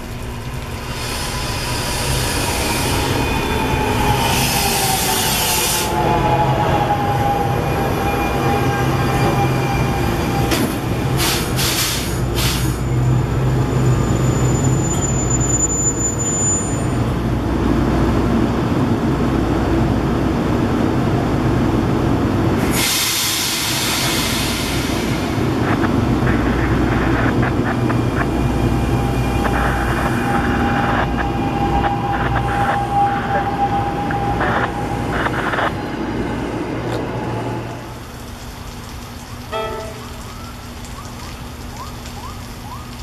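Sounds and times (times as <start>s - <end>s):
train low hum: 0.0s - 43.0s
train brakes squealing: 1.0s - 17.1s
air hissing: 22.6s - 35.8s.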